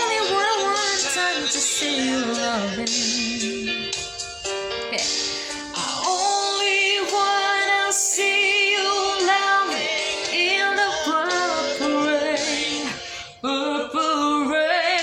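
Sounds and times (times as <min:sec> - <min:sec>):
woman singing slow melody: 0:00.0 - 0:04.0, 0:05.8 - 0:15.0
backing music: 0:00.0 - 0:15.0.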